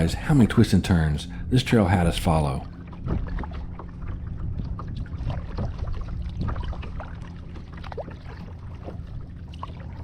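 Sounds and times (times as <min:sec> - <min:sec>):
steady low rumble: 0:00.0 - 0:10.0
paddle strokes in water: 0:02.6 - 0:10.0
water drips and splashes: 0:02.6 - 0:10.0.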